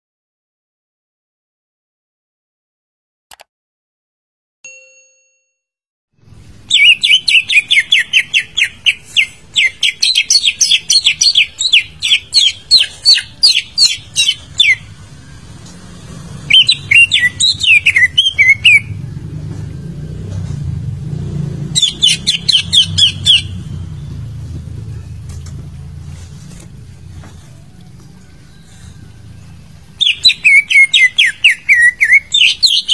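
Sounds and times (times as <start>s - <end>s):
bird singing rapid chirps: 6.6s - 15.0s, 16.3s - 19.4s, 21.4s - 26.1s, 28.1s - 32.9s.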